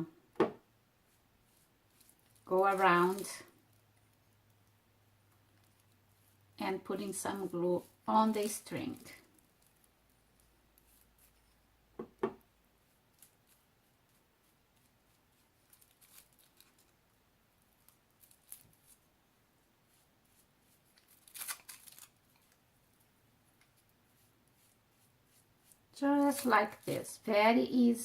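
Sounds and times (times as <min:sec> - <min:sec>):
plastic film rustling: 0:01.5 - 0:04.2, 0:07.1 - 0:11.4, 0:14.5 - 0:17.0, 0:17.8 - 0:19.1, 0:20.3 - 0:23.9, 0:24.5 - 0:27.3
small clicks and rustles: 0:01.5 - 0:06.4, 0:08.4 - 0:11.7, 0:12.8 - 0:17.0, 0:17.8 - 0:19.1, 0:20.7 - 0:27.1.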